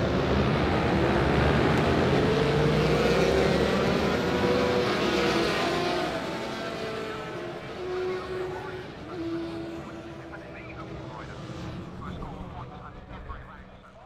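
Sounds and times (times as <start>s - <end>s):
racing motorcycle engine revving: 0.1s - 8.8s.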